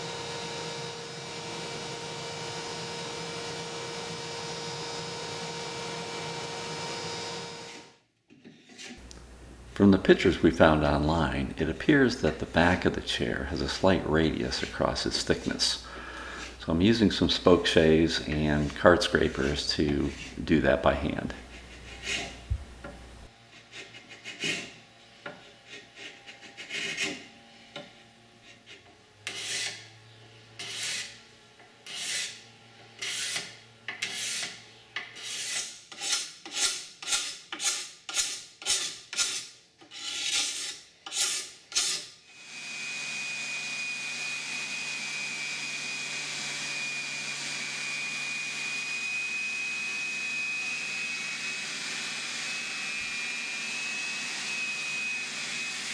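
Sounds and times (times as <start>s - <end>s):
hand tool scraping wood: 8.4s - 9.1s, 9.8s - 29.8s, 30.6s - 31.2s, 31.8s - 32.4s, 33.0s - 42.2s.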